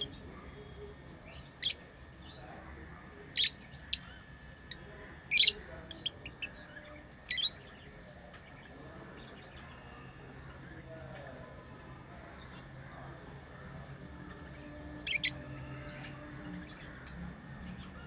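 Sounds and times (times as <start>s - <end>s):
lovebirds chirping: 0.0s - 18.0s.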